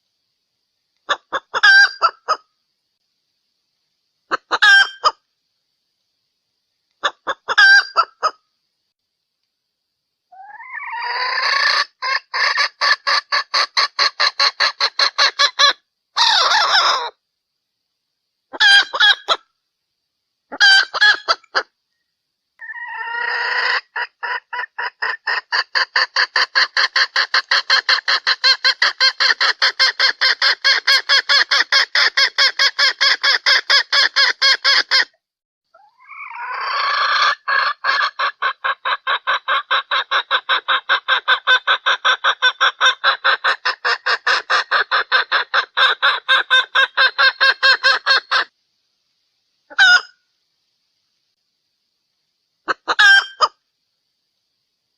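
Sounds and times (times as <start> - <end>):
junglefowl hen clucking: 1.0 - 2.5, 4.3 - 5.2, 7.0 - 8.4, 10.3 - 17.2, 18.5 - 19.5, 20.5 - 21.8, 22.6 - 48.5, 49.7 - 50.2, 52.6 - 53.6.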